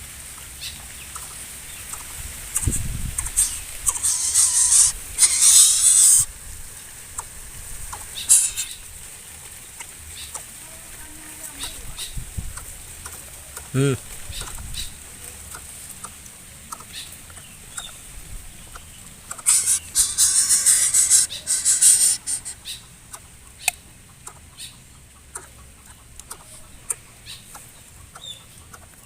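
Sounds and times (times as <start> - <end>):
bird harsh raspy call: 2.6 - 6.3, 8.2 - 8.8, 19.4 - 22.8.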